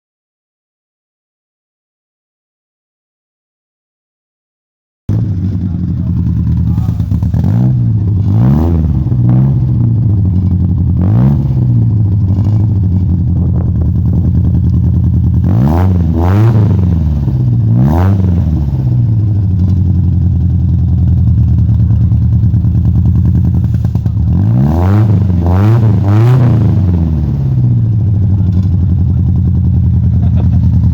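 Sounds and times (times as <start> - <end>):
car engine idling: 5.1 - 30.9
engine throttle blips: 5.1 - 30.9.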